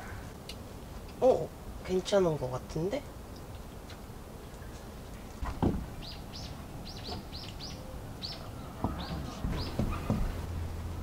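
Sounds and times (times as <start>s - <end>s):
small bird chirping: 3.3s - 10.4s
soft knocks: 5.4s - 5.9s, 8.8s - 10.4s
dull thump: 5.4s - 6.0s, 8.8s - 10.5s.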